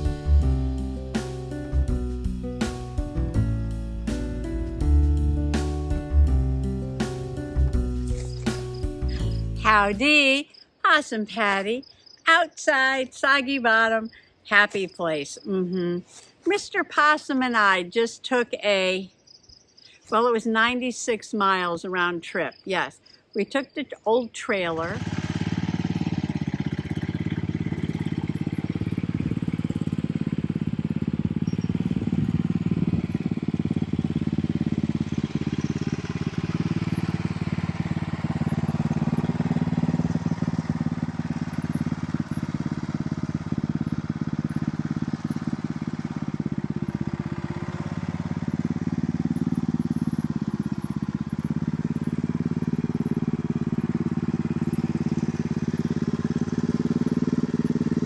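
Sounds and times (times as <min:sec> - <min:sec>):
vehicle engine droning: 0:00.0 - 0:10.0, 0:24.7 - 0:58.0.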